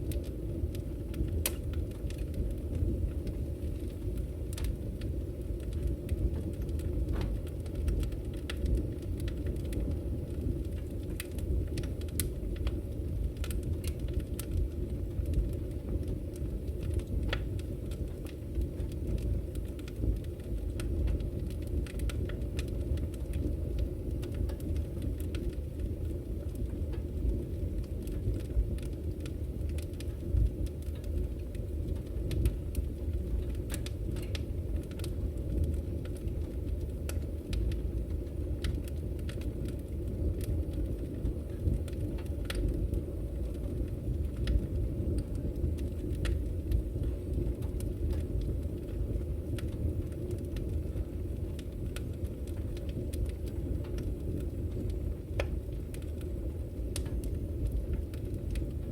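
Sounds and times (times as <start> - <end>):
firewood crackling and popping: 0.0 - 58.9
low fire rumble: 0.0 - 58.9.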